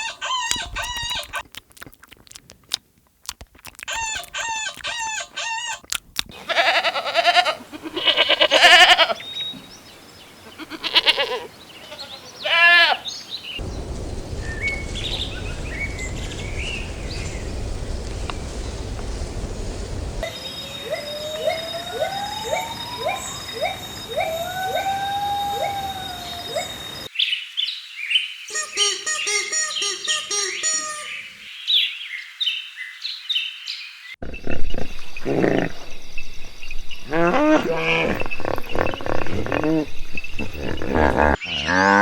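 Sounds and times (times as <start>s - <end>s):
chicken clucking: 0.0s - 1.4s, 3.7s - 5.8s
goats bleating: 6.4s - 9.2s, 10.4s - 13.1s
low rumble: 13.6s - 20.2s.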